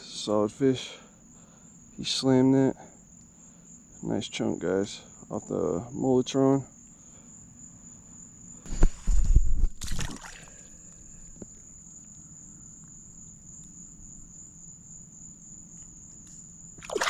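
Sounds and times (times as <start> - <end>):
thumps and rustling near microphone: 8.6 - 10.2.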